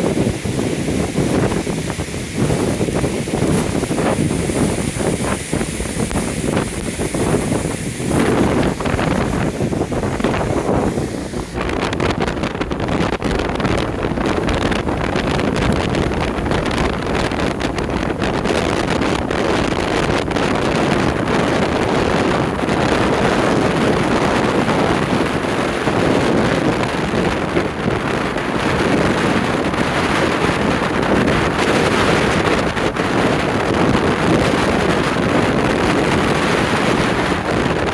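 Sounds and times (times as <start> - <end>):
waves surf: 0.0 - 11.8
storm wind buffeting microphone: 0.0 - 37.9.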